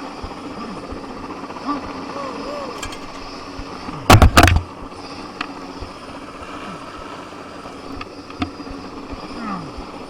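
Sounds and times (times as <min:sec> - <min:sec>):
helicopter drone: 0:00.0 - 0:10.0
loud burst of knocks: 0:04.1 - 0:04.7.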